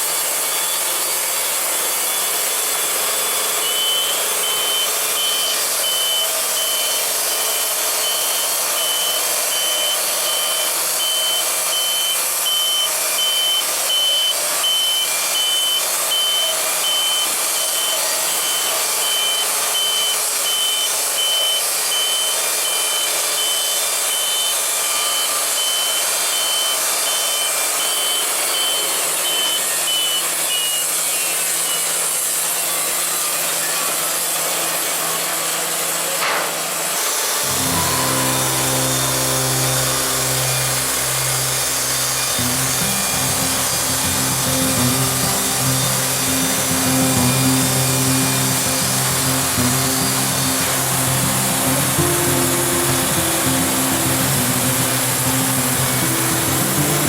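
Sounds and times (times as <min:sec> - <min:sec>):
band sawmill running: 0:00.0 - 0:57.0
rapid high beeping: 0:37.5 - 0:57.0.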